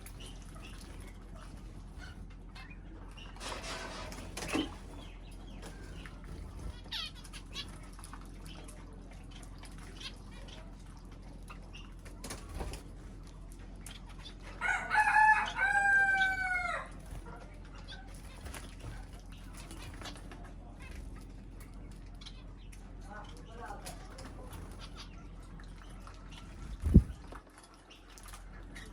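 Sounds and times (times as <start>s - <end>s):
rooster crowing: 14.6s - 17.0s.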